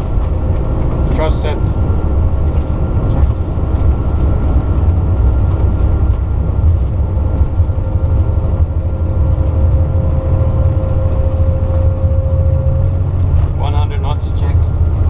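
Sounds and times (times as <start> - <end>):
jet engines rumbling at takeoff: 0.0 - 15.0
thin steady whine: 6.4 - 15.0.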